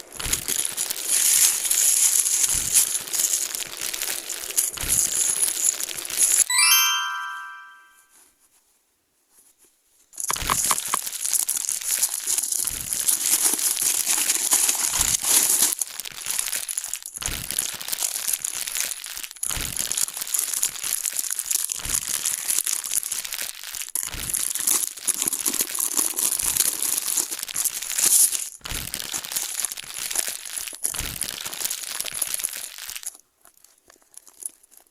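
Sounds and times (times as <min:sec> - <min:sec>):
plastic packaging crinkling: 0:10.3 - 0:19.2, 0:19.8 - 0:34.9.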